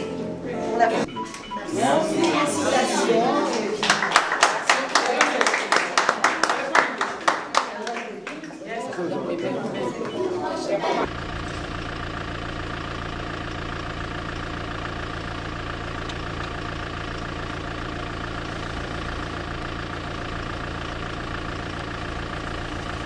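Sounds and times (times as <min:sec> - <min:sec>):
car engine running at low revs: 0:11.0 - 0:23.0.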